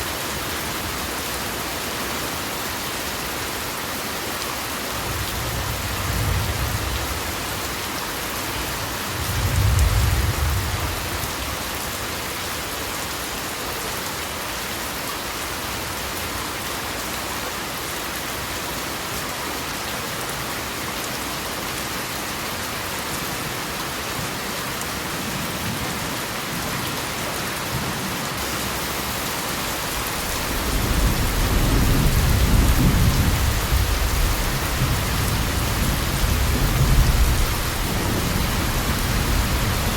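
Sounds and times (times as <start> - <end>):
rolling thunder: 9.2 - 11.0, 30.2 - 39.9
heavy rain hissing: 22.7 - 39.9.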